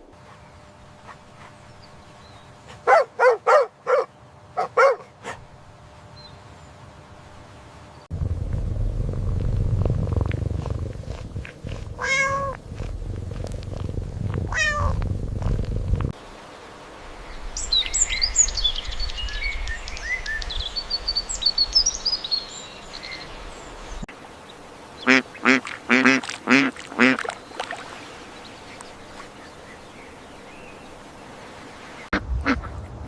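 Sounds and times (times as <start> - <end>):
cat purring: 8.1 - 16.2
cat meowing: 12.0 - 12.6, 14.5 - 15.0
duck quacking: 25.1 - 27.3, 32.1 - 32.8.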